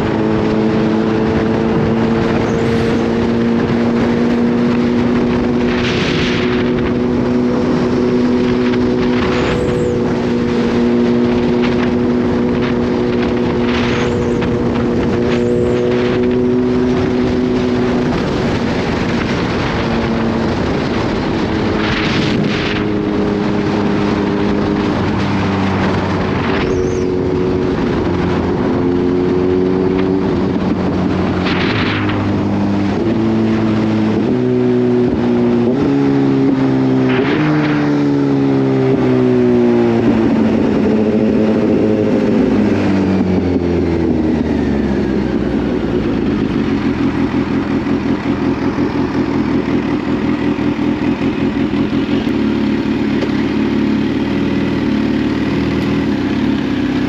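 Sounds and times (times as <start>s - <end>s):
motorcycle engine revving: 0.0s - 57.0s
engine idling: 45.5s - 57.0s.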